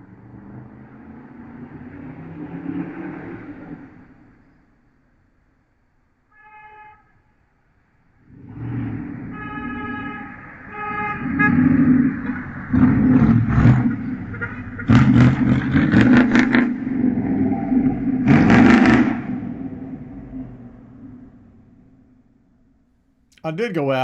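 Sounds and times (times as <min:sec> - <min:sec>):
vehicles driving past: 0:00.0 - 0:05.2, 0:07.8 - 0:22.8
car horn honking: 0:09.3 - 0:11.8.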